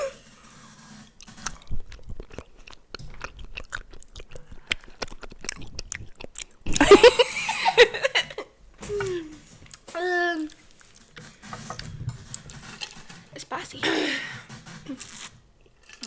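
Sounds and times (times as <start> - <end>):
person chewing: 1.2 - 6.9.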